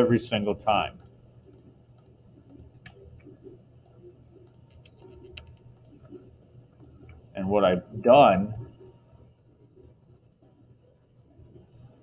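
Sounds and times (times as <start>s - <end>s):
low steady hum: 0.0s - 12.0s
computer mouse clicks: 0.4s - 7.3s.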